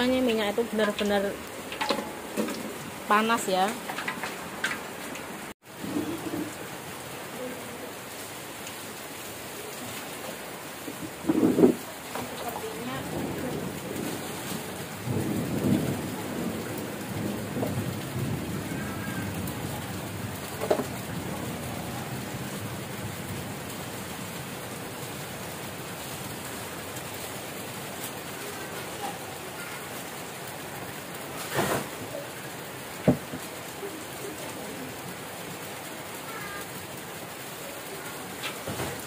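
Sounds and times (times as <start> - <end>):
heavy rain pouring: 0.0 - 39.0
low rumble of thunder: 5.7 - 6.7, 10.8 - 25.0.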